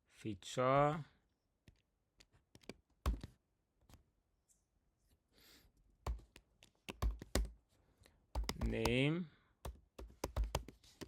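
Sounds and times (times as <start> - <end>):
soft breath: 5.2 - 5.8
keyboard keystrokes: 6.1 - 7.5, 8.4 - 9.0.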